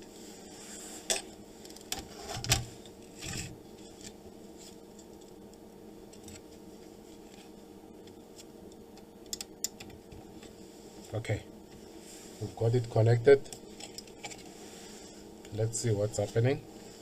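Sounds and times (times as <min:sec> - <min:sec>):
faint room noise: 0:00.0 - 0:17.0
rubbing and scraping sounds: 0:01.9 - 0:04.9.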